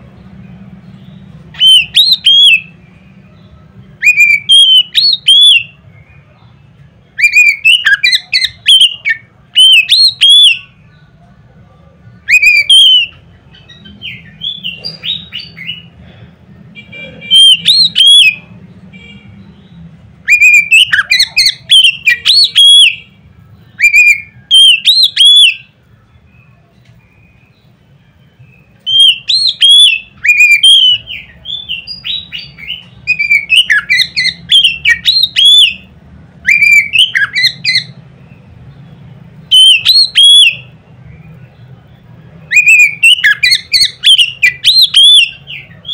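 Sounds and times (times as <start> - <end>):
bird singing whistled phrases: 1.0 - 2.8, 4.0 - 6.2, 7.1 - 10.7, 12.2 - 15.9, 17.2 - 25.7, 28.2 - 38.0, 39.5 - 45.9.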